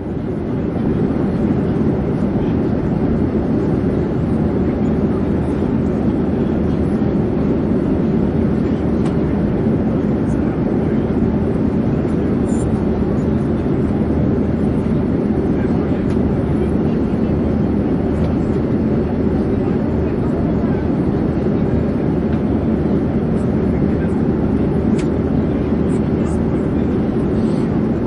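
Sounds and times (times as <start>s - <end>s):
airplane engine drone: 0.0s - 28.0s.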